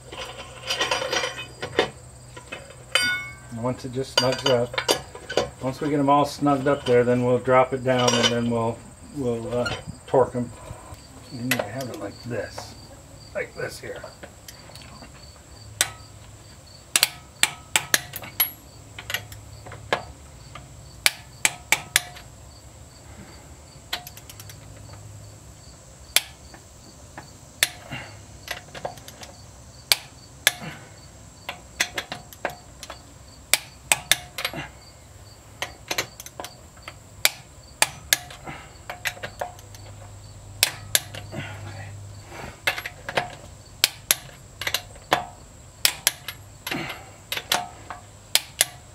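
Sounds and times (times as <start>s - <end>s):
insects trilling: 0.0s - 48.9s
ratchet wrench clicking: 23.9s - 24.6s, 42.6s - 46.4s, 48.3s - 48.9s.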